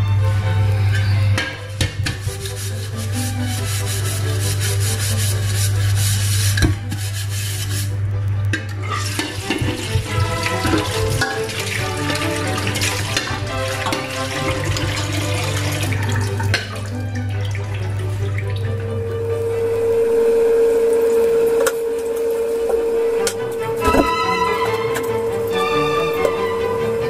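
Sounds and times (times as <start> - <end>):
background music: 0.0 - 27.0
food sizzling and bubbling: 0.0 - 27.0
low hum: 18.1 - 27.0.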